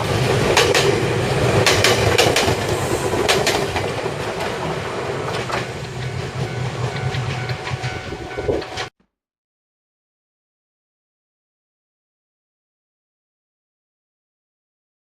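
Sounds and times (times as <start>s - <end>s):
electric train rumbling past: 0.0s - 8.9s
wheel clacks over rail joints: 0.0s - 8.9s.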